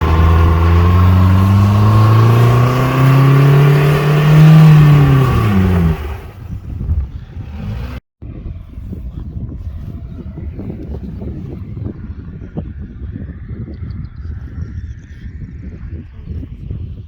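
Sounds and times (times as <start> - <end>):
car engine revving: 0.0 - 8.0
wheels spinning in wet grass: 0.0 - 8.0.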